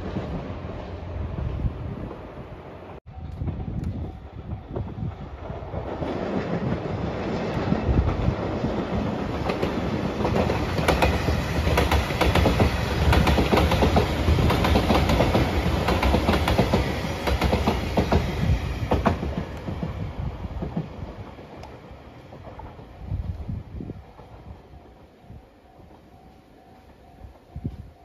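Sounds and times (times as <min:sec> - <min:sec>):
train rumble: 0:00.0 - 0:28.0
wheels clacking over rail joints: 0:04.7 - 0:23.0.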